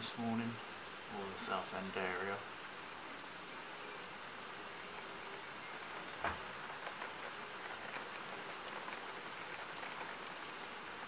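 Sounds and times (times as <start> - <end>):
steady rain: 0.0 - 11.0
drops tapping on window glass: 5.8 - 10.4.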